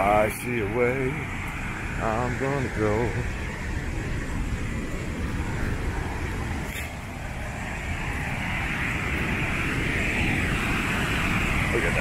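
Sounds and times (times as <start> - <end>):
waterfall rushing roar: 0.0 - 12.0.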